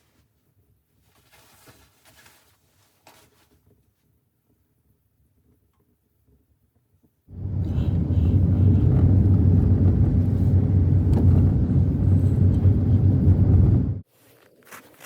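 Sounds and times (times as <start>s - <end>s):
strong wind buffeting microphone: 7.3s - 14.0s.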